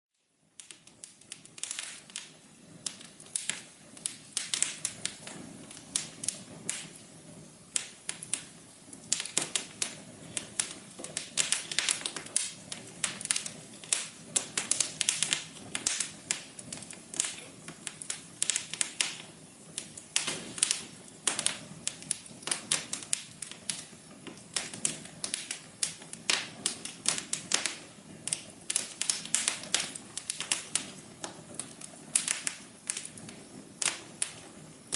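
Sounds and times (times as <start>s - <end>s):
soft hiss of burning: 0.2s - 34.9s
wood fire crackling and popping: 0.2s - 34.9s.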